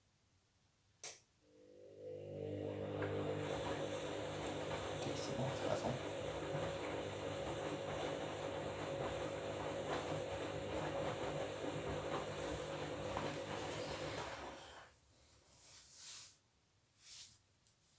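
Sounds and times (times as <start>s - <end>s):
washing machine motor hum: 1.5s - 15.0s.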